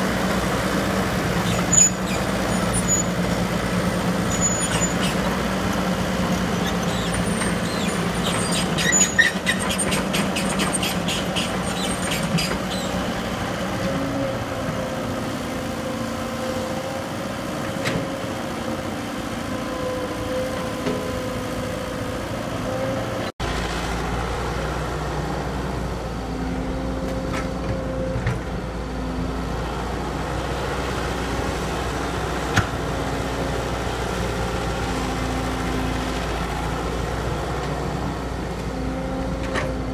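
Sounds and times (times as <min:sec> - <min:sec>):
diesel machinery running: 0:00.0 - 0:39.9.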